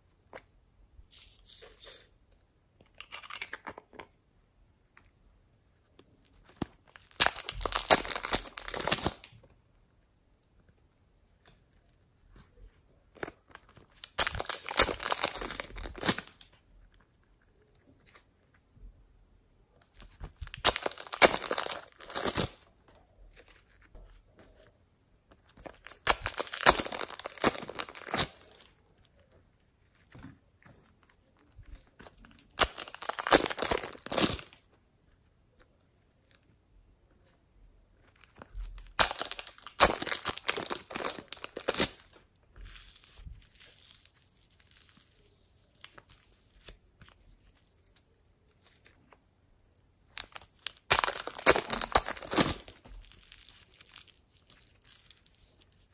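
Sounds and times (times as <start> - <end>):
slime crackling and popping: 6.4 - 9.3, 13.2 - 16.6, 20.1 - 22.6, 25.6 - 28.6, 31.6 - 34.6, 38.2 - 47.9, 50.0 - 55.9.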